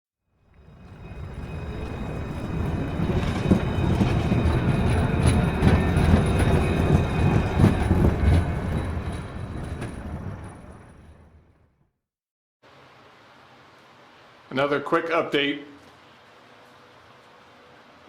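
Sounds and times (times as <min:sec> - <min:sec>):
train wheels clacking: 0:00.7 - 0:11.3.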